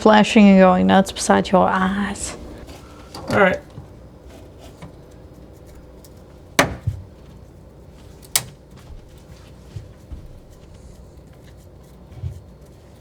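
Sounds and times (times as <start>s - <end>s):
sharp knocks: 6.6s - 7.1s.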